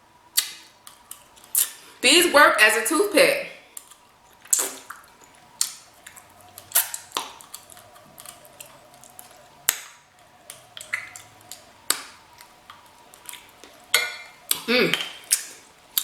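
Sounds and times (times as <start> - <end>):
faint steady hum: 0.0 - 16.0
mouth clicks and smacks eating: 3.8 - 9.9, 10.5 - 16.0.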